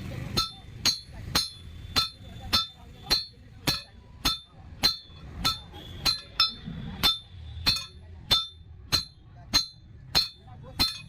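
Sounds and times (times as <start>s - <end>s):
hammer striking steel on anvil: 0.1s - 11.0s.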